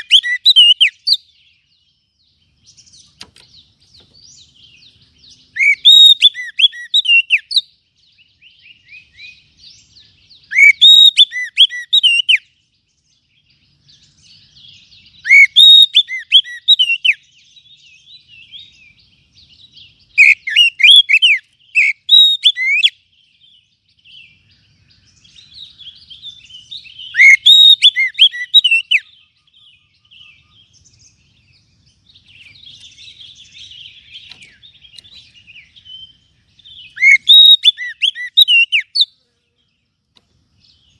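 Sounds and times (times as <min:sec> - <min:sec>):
bird twittering: 0:00.0 - 0:12.7, 0:13.3 - 0:39.2
bird whistling sweeping notes: 0:05.5 - 0:07.6, 0:10.4 - 0:12.4, 0:26.9 - 0:29.1, 0:36.8 - 0:39.1.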